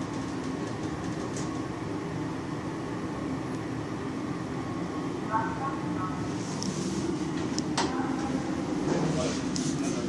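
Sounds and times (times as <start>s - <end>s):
lift car humming in motion: 0.0s - 10.0s.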